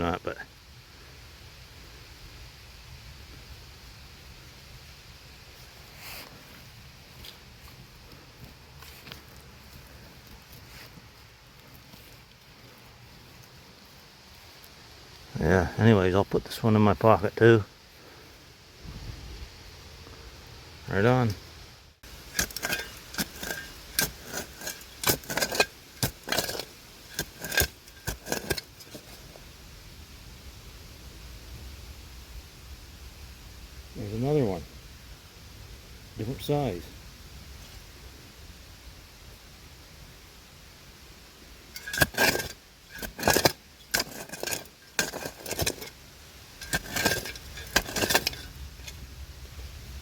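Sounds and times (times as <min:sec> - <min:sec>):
digging tool scraping dirt: 0:22.0 - 0:29.4, 0:41.7 - 0:49.1.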